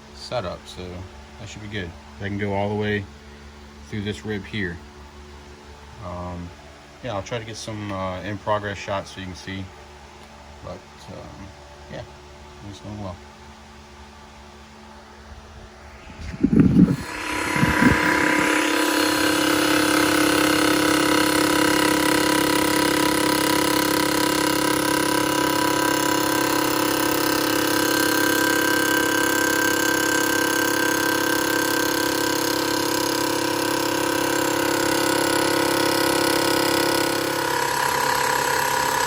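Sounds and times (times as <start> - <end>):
mill cutting aluminium: 15.7 - 39.0.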